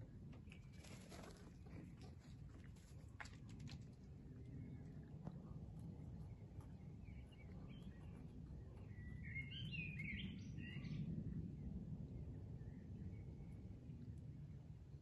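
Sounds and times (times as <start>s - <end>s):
low background rumble: 0.0s - 15.0s
songbird chirping and warbling: 6.1s - 11.2s.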